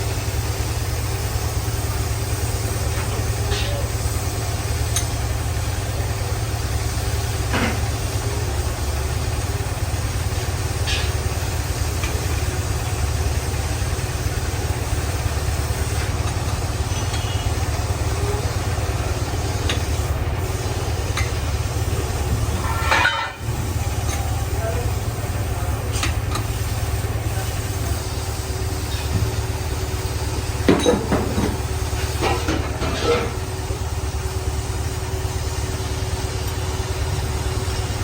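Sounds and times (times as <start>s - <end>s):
boring machine low rumble: 0.0s - 38.0s
metal clatter: 22.4s - 24.3s, 30.6s - 33.5s.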